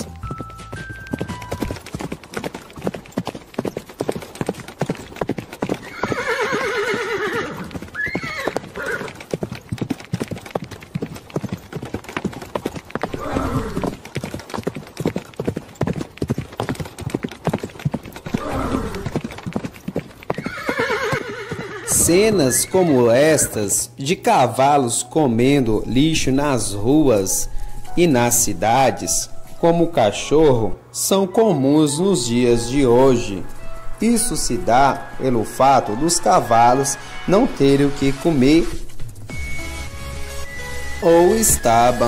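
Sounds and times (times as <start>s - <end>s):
horse hooves clopping: 0.0s - 23.6s, 32.4s - 42.0s
horse whinnying: 5.7s - 9.2s, 13.1s - 14.0s, 18.2s - 19.2s, 20.3s - 23.5s.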